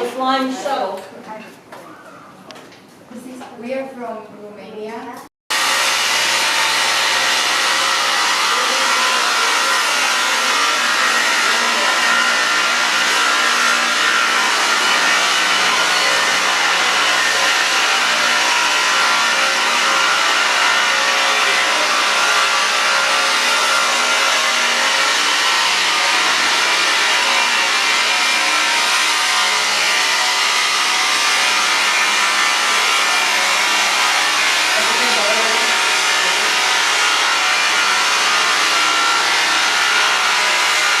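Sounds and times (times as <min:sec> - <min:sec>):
faint voices: 0:00.0 - 0:03.8
weaving loom machinery running: 0:05.5 - 0:41.0.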